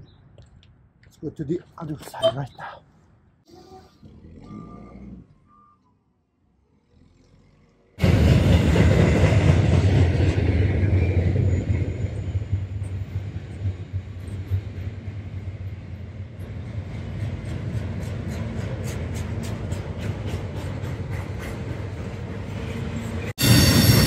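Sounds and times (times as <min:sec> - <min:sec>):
freight train rumbling past: 0:08.0 - 0:24.0.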